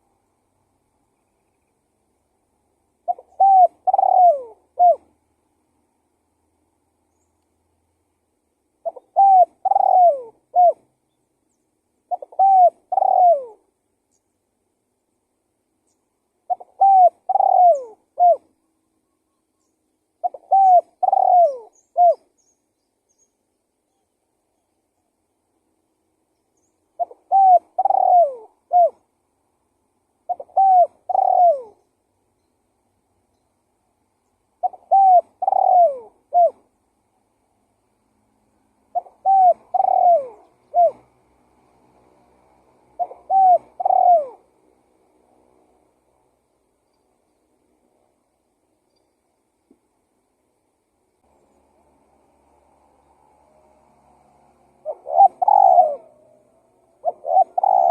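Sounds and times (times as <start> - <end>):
dove cooing: 3.0 - 5.2, 8.8 - 10.9, 12.1 - 13.7, 16.5 - 18.6, 20.2 - 22.3, 27.0 - 29.1, 30.2 - 31.9, 34.6 - 36.7, 38.9 - 42.2, 42.8 - 44.6, 54.4 - 57.9.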